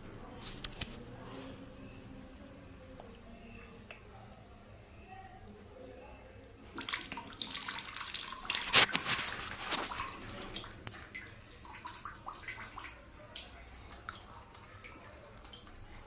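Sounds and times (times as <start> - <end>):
water dripping: 2.8 - 4.4, 6.3 - 16.0
water splashing: 6.7 - 16.0.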